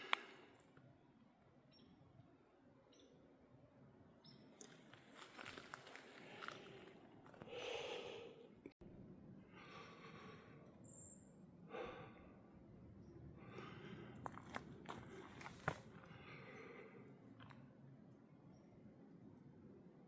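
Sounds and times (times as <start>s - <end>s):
person breathing: 5.8s - 8.6s, 9.5s - 10.8s, 11.6s - 12.6s, 13.4s - 17.2s.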